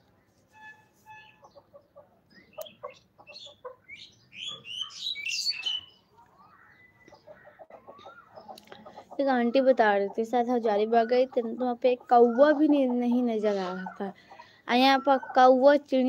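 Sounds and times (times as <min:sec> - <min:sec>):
birds chirping and warbling: 0:00.1 - 0:16.0.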